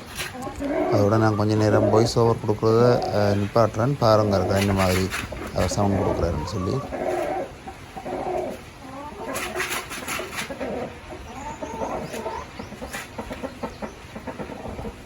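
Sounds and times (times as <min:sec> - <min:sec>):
rooster clucking: 0:00.0 - 0:15.0.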